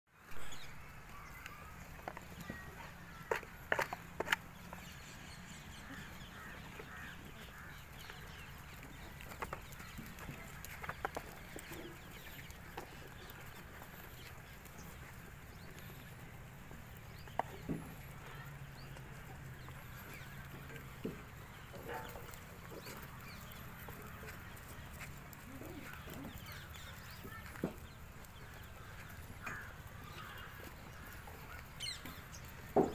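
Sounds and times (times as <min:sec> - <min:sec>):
chickens clucking: 0:01.1 - 0:32.9.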